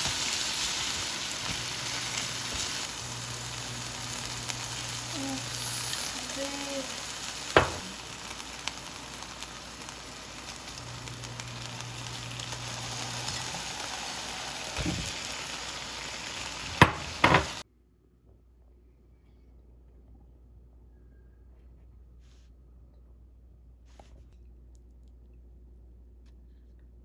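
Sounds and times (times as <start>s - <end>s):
food sizzling in a pan: 0.0s - 17.6s.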